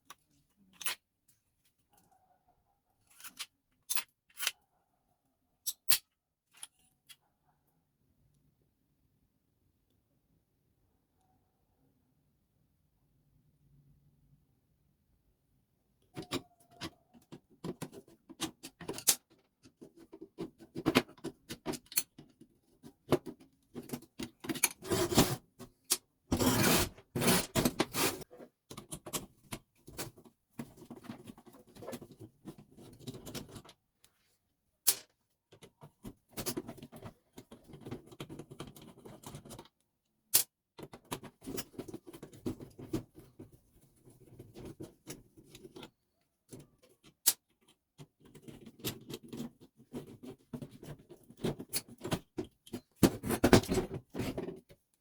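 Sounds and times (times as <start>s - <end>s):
small plastic parts clicking and rattling: 16.1s - 26.6s, 27.2s - 33.8s, 34.8s - 54.8s.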